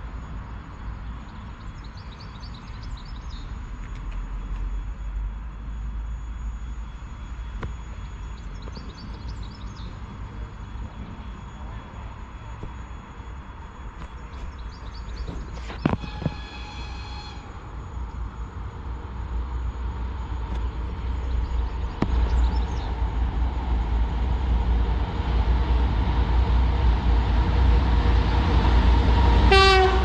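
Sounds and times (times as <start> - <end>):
diesel locomotive rumble: 0.0 - 30.0.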